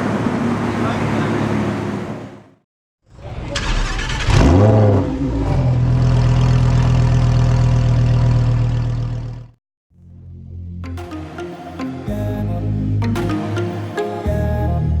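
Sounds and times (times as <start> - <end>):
car engine starting and revving: 3.1 - 9.6.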